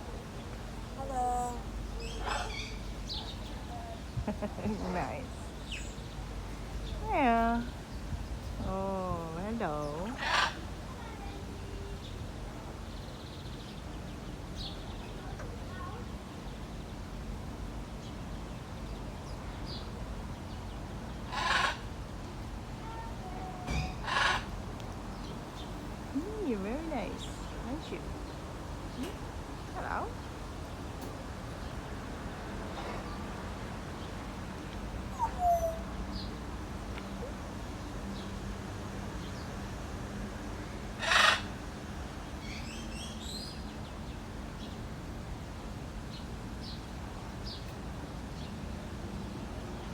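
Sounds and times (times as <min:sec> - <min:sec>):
parrot squawk: 0:02.0 - 0:02.8, 0:21.3 - 0:21.8, 0:23.8 - 0:24.5, 0:35.1 - 0:35.8, 0:41.0 - 0:41.5.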